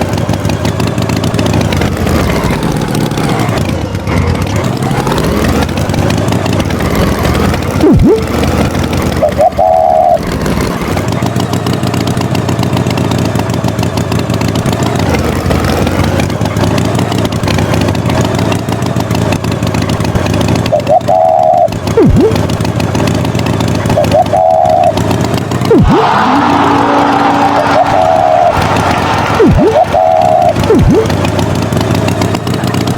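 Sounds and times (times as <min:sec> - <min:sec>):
tractor engine running: 0:00.0 - 0:32.9
short high-pitched tones: 0:07.8 - 0:08.4, 0:09.2 - 0:10.3, 0:20.7 - 0:22.4, 0:23.9 - 0:25.0, 0:25.7 - 0:28.8, 0:29.4 - 0:31.2.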